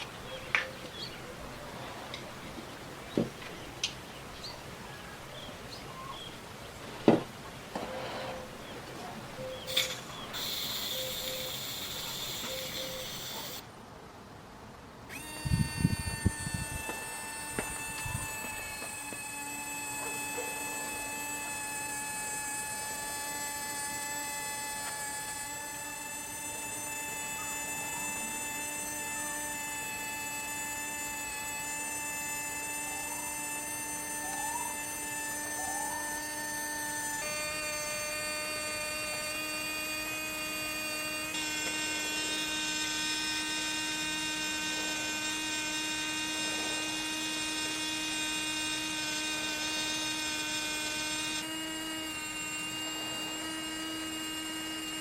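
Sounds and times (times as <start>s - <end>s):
machine electric hum: 0.0s - 13.7s, 14.9s - 55.0s
high hiss: 9.7s - 13.7s.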